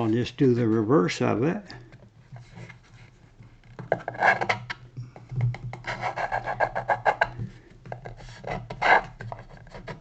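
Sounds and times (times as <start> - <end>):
wood taps and knocks: 5.2 - 5.8
pencil scratching on wood: 5.8 - 7.4, 8.1 - 10.0.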